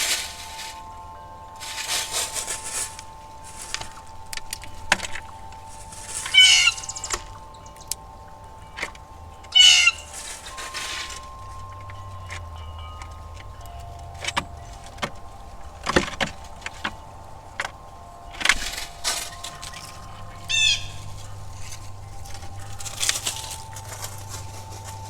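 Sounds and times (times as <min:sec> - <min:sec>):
long ringing tones: 0:00.0 - 0:25.0
low steady rumble: 0:02.5 - 0:25.0
bird falling high notes: 0:03.6 - 0:08.0.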